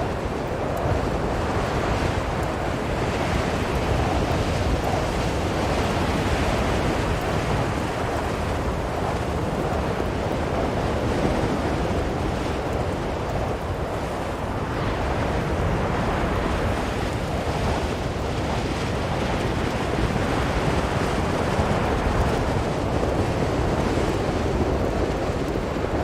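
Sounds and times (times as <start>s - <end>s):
blizzard wind blowing: 0.0s - 26.0s.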